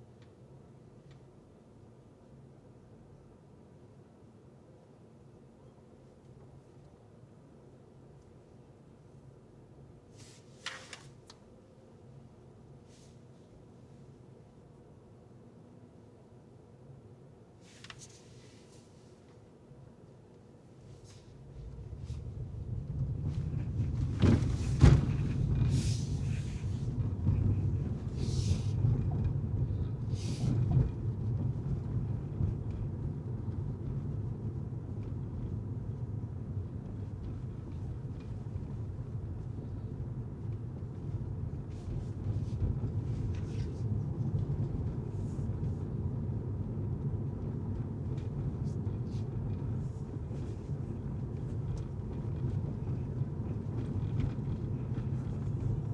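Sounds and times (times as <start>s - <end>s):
car engine and tyres rumbling: 21.2s - 31.7s.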